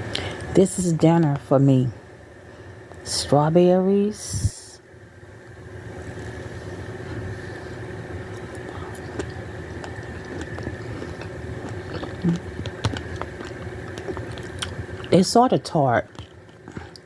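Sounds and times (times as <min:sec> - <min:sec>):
steady mechanical hum: 0:00.0 - 0:17.0
soft chewing clicks: 0:08.2 - 0:15.2, 0:16.0 - 0:17.0.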